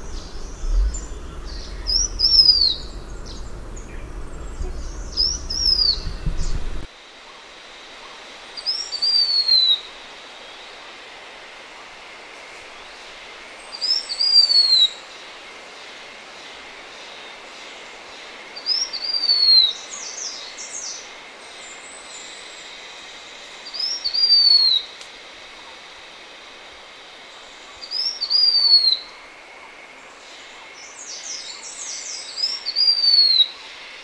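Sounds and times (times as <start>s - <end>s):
bird whistling song: 0.0s - 6.8s, 8.7s - 9.9s, 13.8s - 15.0s, 18.7s - 19.8s, 23.7s - 24.9s, 27.8s - 29.1s, 32.3s - 33.5s
background hiss: 0.0s - 34.0s.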